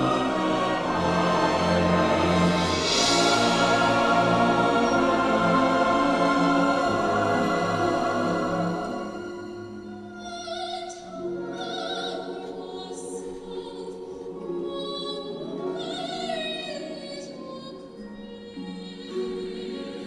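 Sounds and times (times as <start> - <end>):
choir singing held notes: 0.0 - 9.9.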